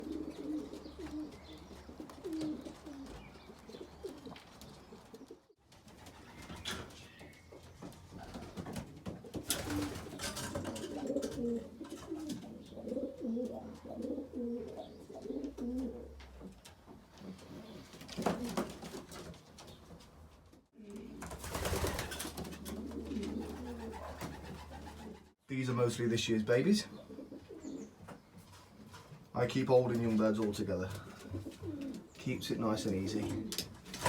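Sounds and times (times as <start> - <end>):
pigeons cooing: 0.0 - 19.1, 20.8 - 25.4, 26.6 - 29.2, 30.9 - 34.0.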